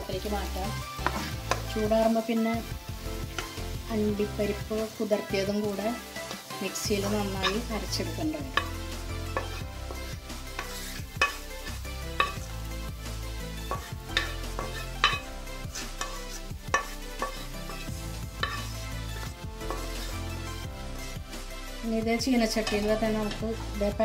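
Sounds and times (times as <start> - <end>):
background music with bass: 0.0 - 24.0
spatula scraping frying pan: 0.9 - 2.0, 3.2 - 21.3, 22.4 - 23.4
spatula knocking pan rim: 8.5 - 12.5, 13.7 - 18.8.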